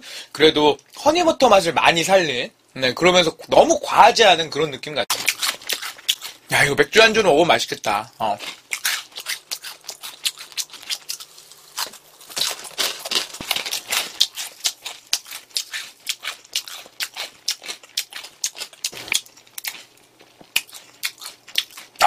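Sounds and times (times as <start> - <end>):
potato sticks crunching: 5.1 - 6.4, 7.8 - 22.0.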